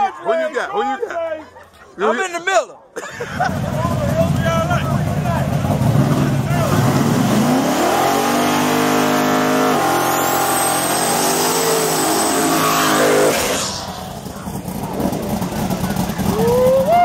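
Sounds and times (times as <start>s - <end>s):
race cars accelerating hard: 5.0s - 17.0s.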